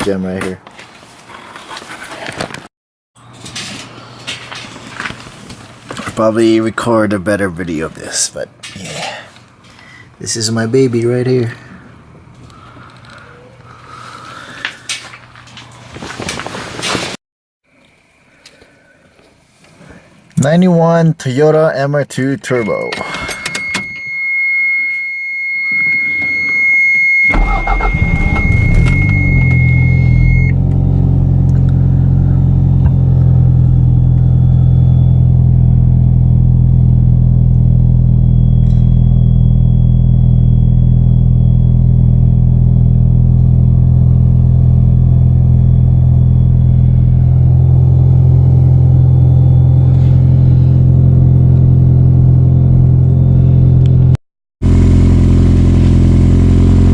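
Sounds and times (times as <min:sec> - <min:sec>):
high warning tone: 0:22.5 - 0:30.6, 0:33.8 - 0:49.9
car engine cranking and idling: 0:27.3 - 0:56.9.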